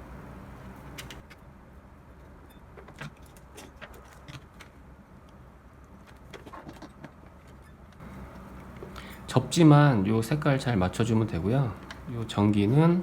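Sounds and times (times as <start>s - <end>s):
low steady hum: 0.0s - 2.8s, 8.0s - 13.0s.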